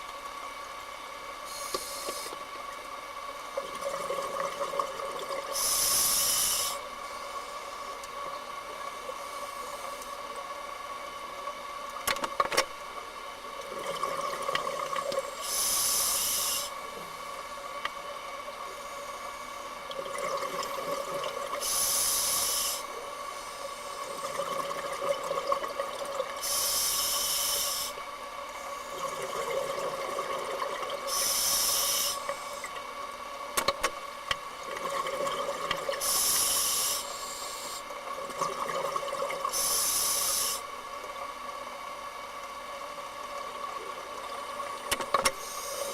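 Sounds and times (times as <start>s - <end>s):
faint steady hum: 0.0s - 45.9s
regulator hiss on inhale: 1.4s - 2.4s, 5.5s - 8.0s, 9.0s - 10.3s, 15.3s - 17.0s, 21.5s - 24.3s, 26.4s - 28.0s, 31.0s - 32.7s, 36.0s - 38.0s, 39.5s - 40.8s, 45.3s - 45.9s.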